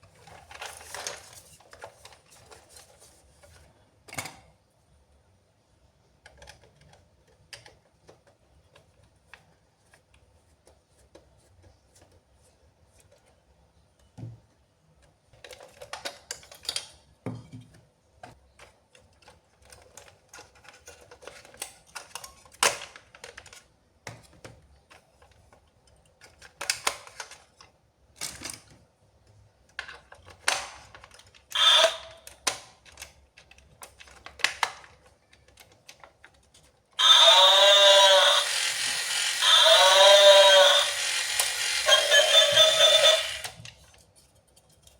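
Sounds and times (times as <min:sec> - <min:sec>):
packaging rustling and crinkling: 0:00.0 - 0:03.6.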